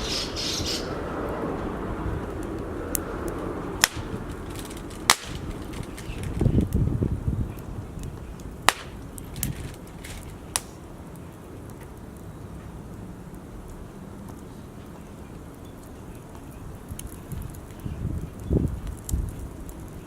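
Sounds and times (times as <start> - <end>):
low rumble: 0.0 - 10.5
wood fire crackling: 0.0 - 20.0.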